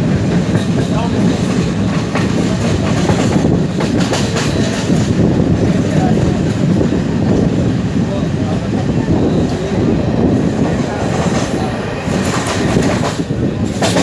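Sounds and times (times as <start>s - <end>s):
wheels clacking over rail joints: 0.0s - 6.3s, 10.6s - 14.0s
train wheels rumbling: 0.0s - 14.0s.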